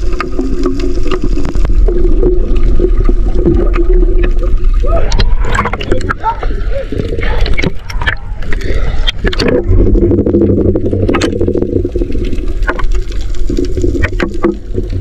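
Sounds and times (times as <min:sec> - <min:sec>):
underwater droning hum: 0:00.0 - 0:15.0
water splashing and bubbling: 0:00.0 - 0:15.0.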